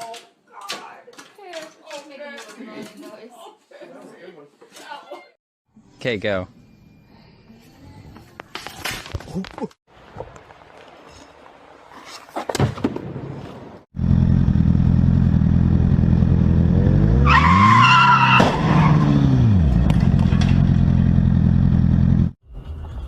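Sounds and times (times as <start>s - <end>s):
car engine starting and revving: 14.0s - 22.4s
tyre squeal: 17.2s - 19.2s.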